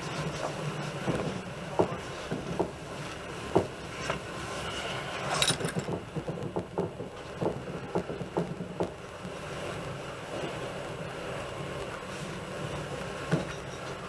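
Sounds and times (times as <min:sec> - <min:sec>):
train rumble inside carriage: 0:00.0 - 0:14.0
wheel knocks and rattles: 0:05.2 - 0:09.0.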